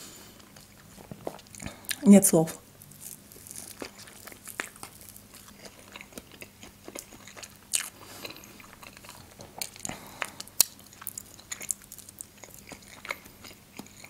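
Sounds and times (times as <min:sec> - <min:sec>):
chewing with wet mouth clicks: 0:03.4 - 0:14.0.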